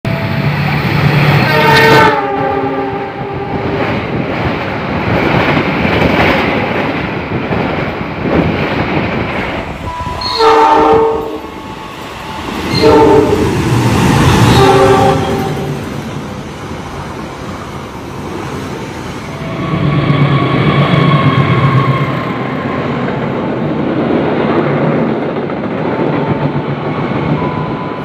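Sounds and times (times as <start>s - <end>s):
train passing on rails: 0.1s - 28.0s
train horn blasts: 1.4s - 3.8s, 9.7s - 15.8s.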